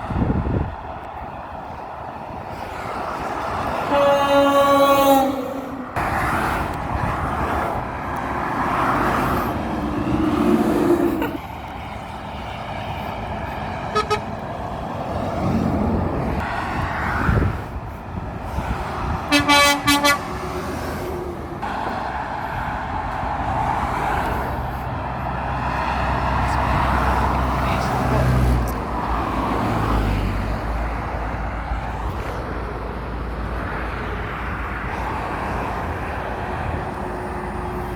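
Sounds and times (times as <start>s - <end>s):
passing road traffic: 0.0s - 37.9s
truck horn toots: 3.8s - 6.0s, 10.1s - 11.4s, 13.9s - 14.4s, 19.3s - 20.4s.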